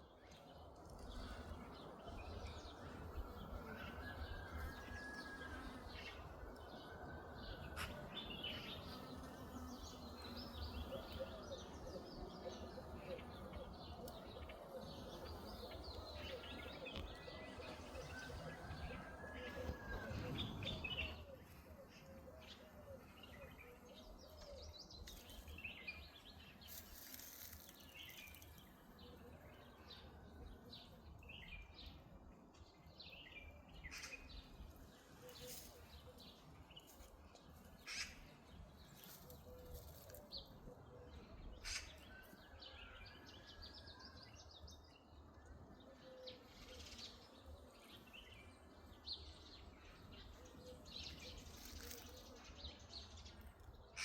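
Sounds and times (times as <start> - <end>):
small birds chirping: 35.1 - 40.5.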